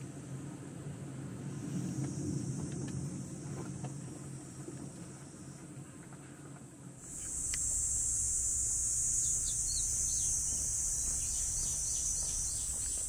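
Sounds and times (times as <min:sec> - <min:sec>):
insects shrilling: 0:07.0 - 0:13.0.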